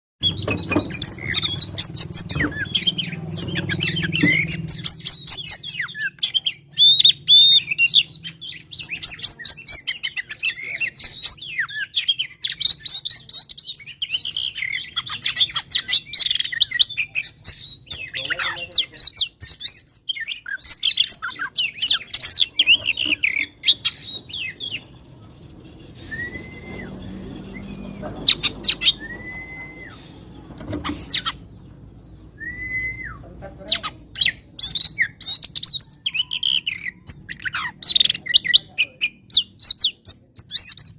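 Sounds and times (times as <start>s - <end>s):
bird song with chirps and whistles: 0.2s - 25.0s, 25.8s - 40.9s
short rising and falling whistles: 26.0s - 28.1s, 28.9s - 30.1s, 32.4s - 33.2s.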